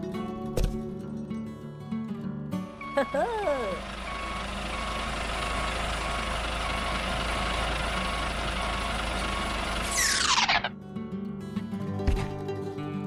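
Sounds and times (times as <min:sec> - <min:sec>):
truck engine running: 0:02.7 - 0:10.7
reversing alarm beeping: 0:02.8 - 0:10.7.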